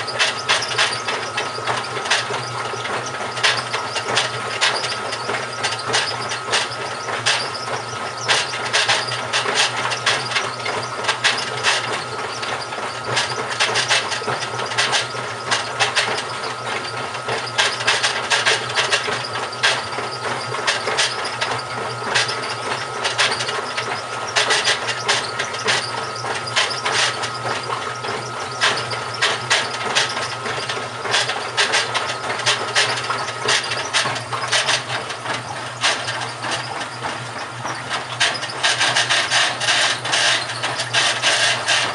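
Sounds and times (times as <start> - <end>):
rapid clicking and scraping: 0.0 - 41.9
washing machine humming: 0.0 - 41.9.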